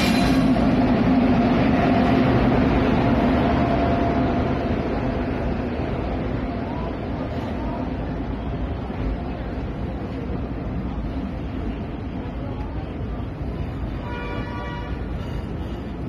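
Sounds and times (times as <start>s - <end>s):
electric locomotive humming: 0.0s - 16.0s
passenger coaches rumbling past: 0.0s - 16.0s.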